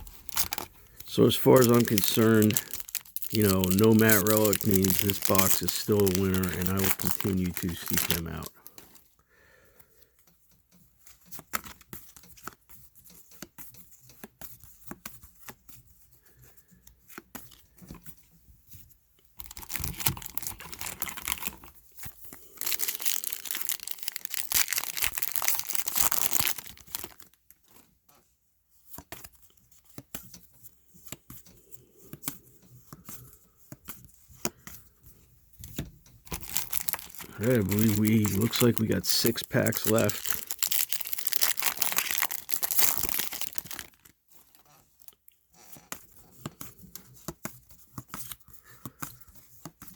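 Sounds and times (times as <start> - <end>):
card pack wrapper tearing: 0.0 - 8.5, 19.4 - 21.7, 22.4 - 27.3, 36.3 - 44.1
cards clicking and rustling: 0.0 - 9.0, 19.4 - 27.9, 35.6 - 44.5.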